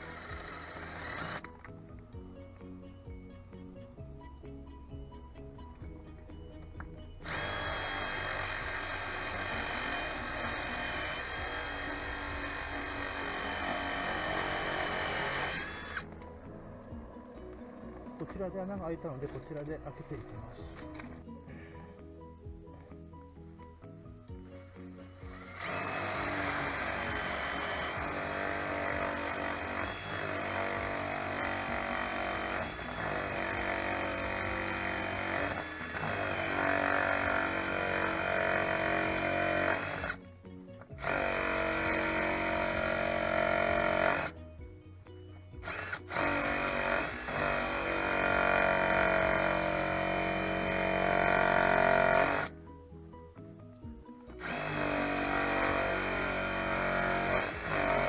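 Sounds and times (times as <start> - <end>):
electric drill boring: 0.0 - 1.8, 6.7 - 21.2, 24.9 - 40.2, 40.9 - 44.3, 45.6 - 52.5, 54.4 - 58.0
background music: 0.0 - 58.0.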